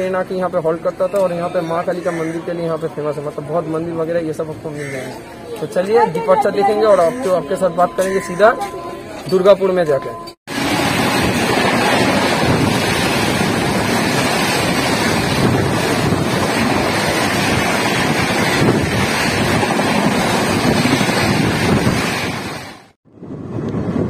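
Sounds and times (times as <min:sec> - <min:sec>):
moving train running noise: 0:06.0 - 0:22.9
wind buffeting microphone: 0:10.5 - 0:24.0.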